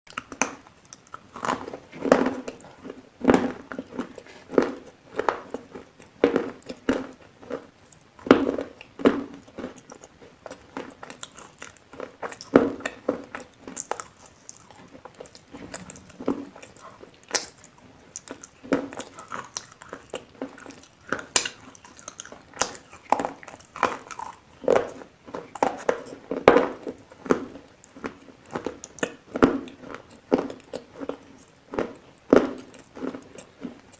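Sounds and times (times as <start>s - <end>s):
food being bitten and chewed: 0.1s - 33.9s.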